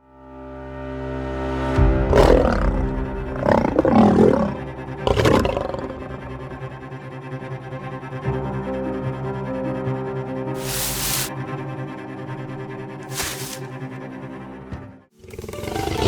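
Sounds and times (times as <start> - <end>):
background music: 0.1 - 16.0
loud animal roars: 2.1 - 6.7, 13.1 - 13.6, 15.3 - 16.0.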